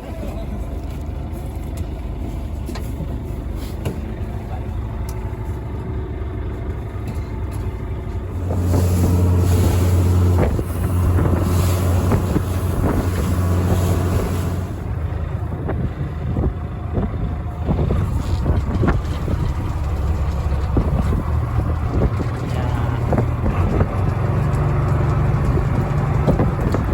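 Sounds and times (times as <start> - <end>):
boat engine humming: 0.0 - 26.9
wind on microphone: 8.3 - 26.9.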